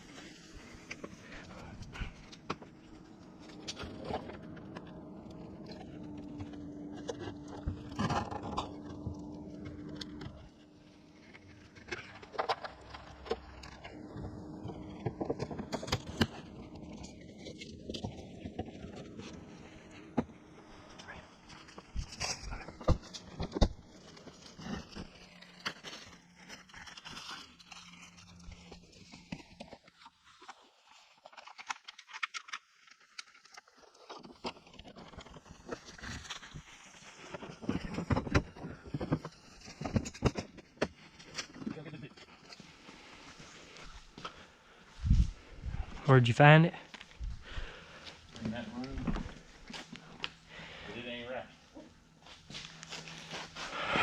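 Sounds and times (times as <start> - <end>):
faint steady hum: 34.8 - 54.0.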